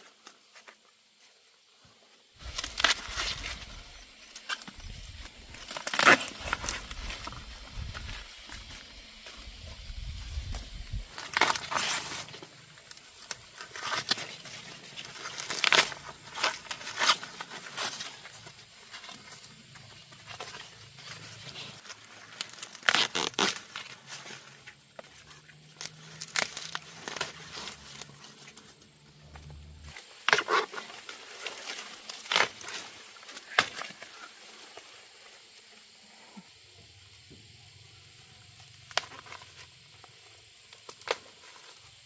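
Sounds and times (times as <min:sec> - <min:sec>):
rustling: 0:00.0 - 0:36.2
dry corn leaves tearing: 0:02.4 - 0:34.8.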